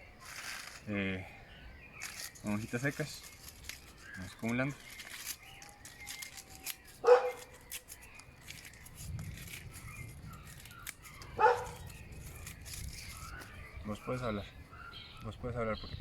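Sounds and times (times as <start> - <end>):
dry leaves crackling: 2.0 - 14.3
dog barking: 7.0 - 7.4, 11.4 - 11.8.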